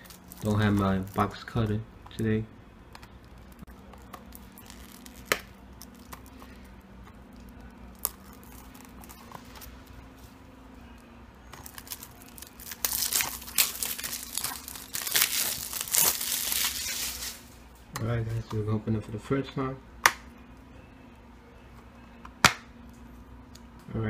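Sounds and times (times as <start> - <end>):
plastic film crinkling and tearing: 0.0 - 1.6, 3.2 - 6.7, 7.3 - 9.9, 11.4 - 17.6.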